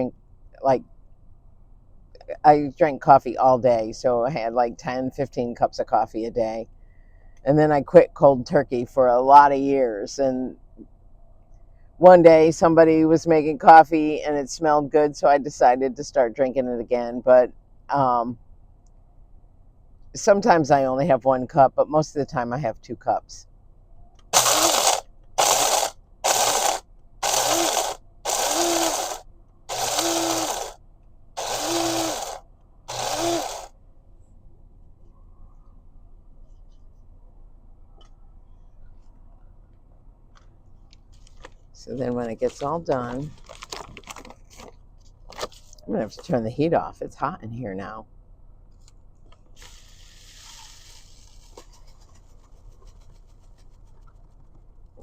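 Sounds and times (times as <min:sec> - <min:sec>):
electric coffee grinder grinding: 0:24.4 - 0:30.8, 0:31.4 - 0:33.7.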